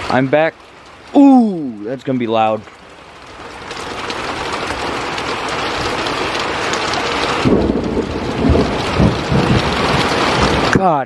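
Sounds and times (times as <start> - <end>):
heavy rain: 0.0 - 11.0
thunder rumbling: 3.3 - 10.9
loud thunder clap: 7.1 - 10.8.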